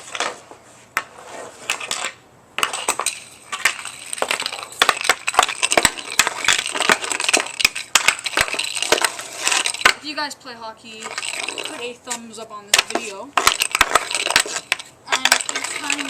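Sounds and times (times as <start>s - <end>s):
hockey stick clacking plastic puck: 1.0s - 10.0s, 11.0s - 16.0s
grit crunching: 2.6s - 10.0s, 11.0s - 16.0s.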